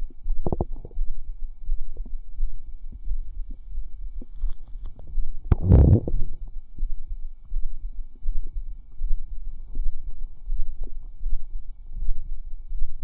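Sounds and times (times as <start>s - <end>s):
stomach gurgling: 0.0s - 2.2s, 2.9s - 6.6s.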